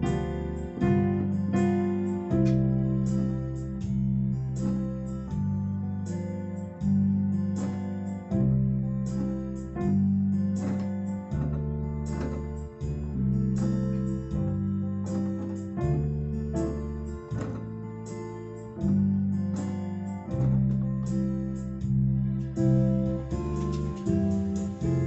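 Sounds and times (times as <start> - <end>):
electronic keyboard backing track: 0.0 - 25.0.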